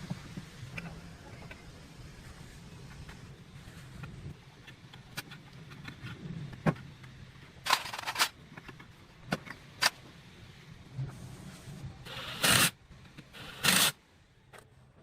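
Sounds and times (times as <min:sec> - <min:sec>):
parts knocking and clicking: 0:04.0 - 0:10.1.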